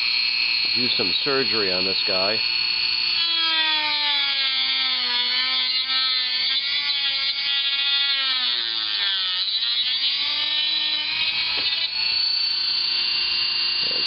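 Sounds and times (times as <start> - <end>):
rotary tool cutting plastic: 0.0 - 14.0.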